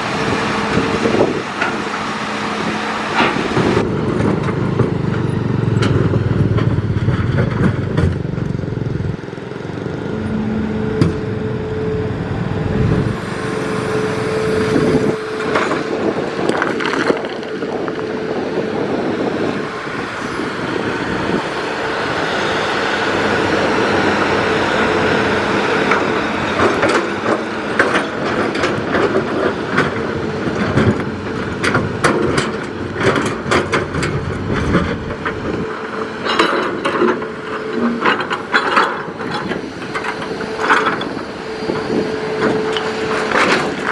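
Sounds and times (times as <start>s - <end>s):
excavator engine and hydraulics whine: 0.0s - 43.9s
knocks and clanks: 3.2s - 8.6s, 25.9s - 43.9s.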